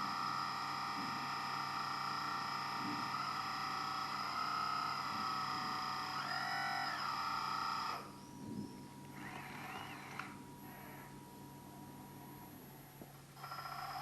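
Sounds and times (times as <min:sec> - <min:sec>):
electric hydraulic pump whining: 0:00.0 - 0:11.2.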